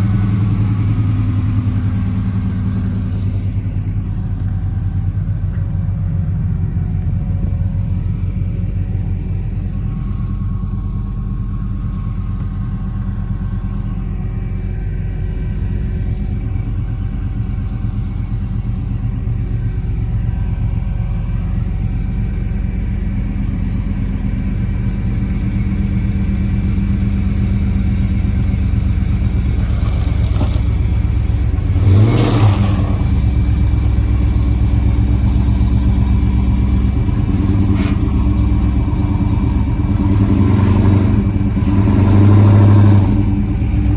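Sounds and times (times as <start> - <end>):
car engine idling: 0.0 - 43.9
engine revving: 29.0 - 34.2, 36.0 - 43.9.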